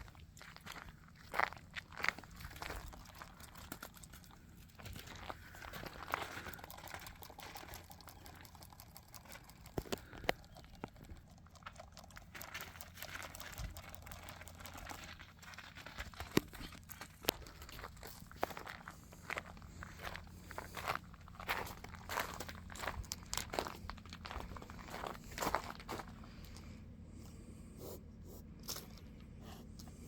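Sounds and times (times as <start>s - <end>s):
footsteps crunching: 0.0s - 8.0s, 12.1s - 26.8s.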